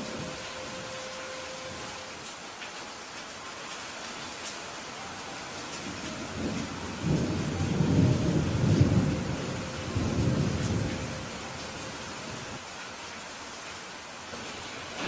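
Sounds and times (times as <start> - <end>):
steady rainfall: 0.0 - 15.0
low roll of thunder: 5.8 - 12.6.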